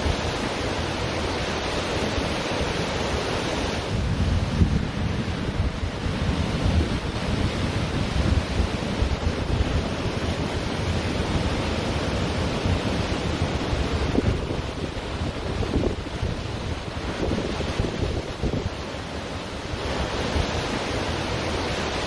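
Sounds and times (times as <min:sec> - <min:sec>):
ocean surf washing onto beach: 0:00.0 - 0:22.0
wind buffeting microphone: 0:03.5 - 0:22.0.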